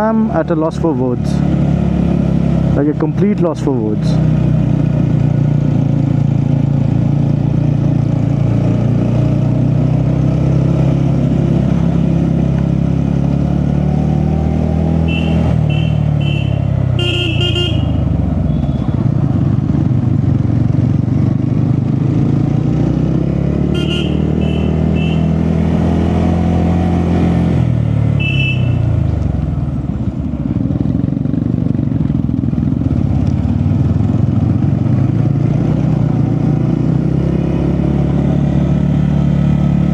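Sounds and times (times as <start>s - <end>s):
motorcycle engine running: 0.0s - 39.9s
short high horn beeps: 15.0s - 19.0s, 23.8s - 25.3s, 28.2s - 28.9s.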